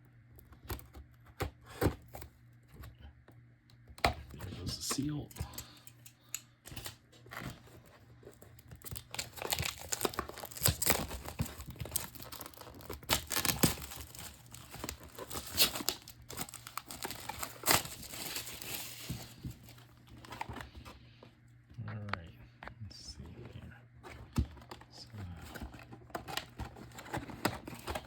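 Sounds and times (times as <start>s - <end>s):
plastic wrap crinkling and tearing: 6.7s - 20.7s, 26.0s - 28.0s.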